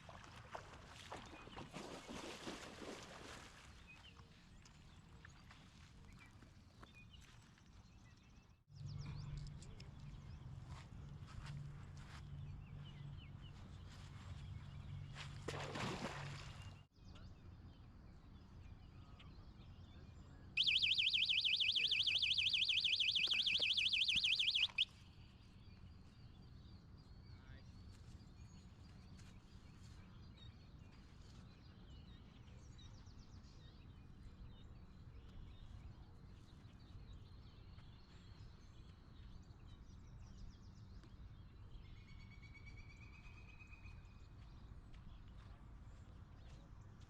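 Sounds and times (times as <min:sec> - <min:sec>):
birds chirping: 0:20.6 - 0:24.8
electronic alarm warbling: 0:20.6 - 0:24.8.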